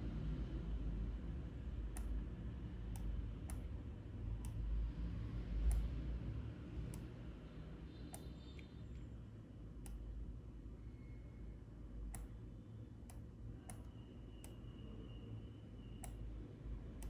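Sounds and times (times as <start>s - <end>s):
computer mouse clicking: 1.9s - 2.2s, 2.9s - 3.7s, 4.4s - 4.6s, 5.6s - 6.0s, 8.1s - 8.7s, 9.8s - 10.0s, 12.1s - 12.4s, 13.0s - 14.7s, 16.0s - 16.2s.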